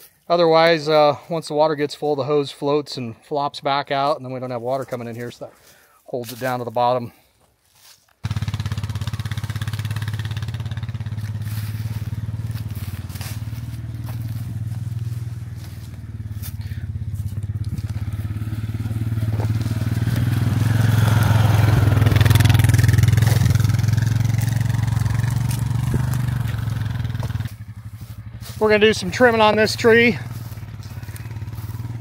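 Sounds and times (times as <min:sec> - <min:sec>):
rough crunching noise: 0:04.0 - 0:32.0
vehicle engine humming: 0:08.2 - 0:32.0.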